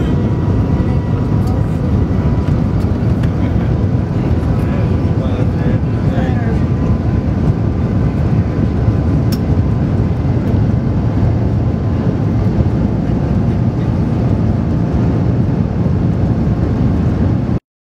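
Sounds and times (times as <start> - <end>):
train rumble inside carriage: 0.0 - 17.6.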